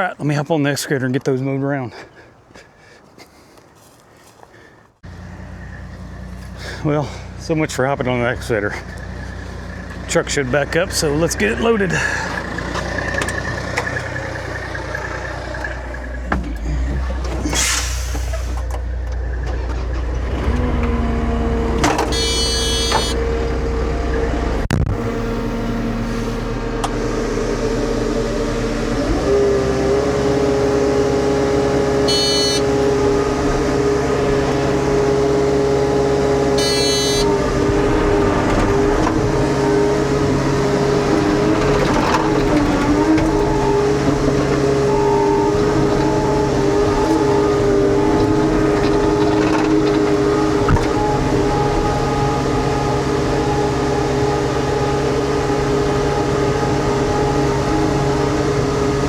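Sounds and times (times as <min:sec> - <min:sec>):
diesel engines running: 0:00.0 - 0:59.0.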